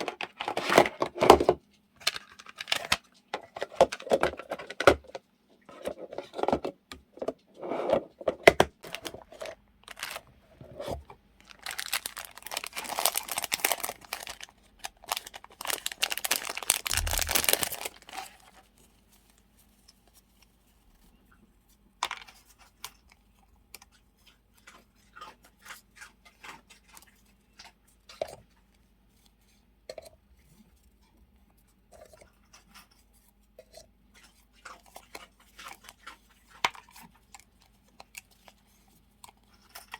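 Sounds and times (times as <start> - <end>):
paper tearing and crinkling: 11.5 - 18.6.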